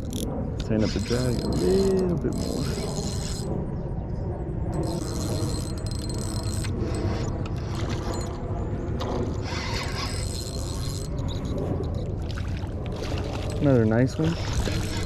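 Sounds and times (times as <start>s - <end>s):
fishing reel clicking: 0.0s - 3.5s, 4.8s - 8.4s, 9.4s - 12.1s, 14.3s - 15.0s
steady low rumble: 0.0s - 15.0s.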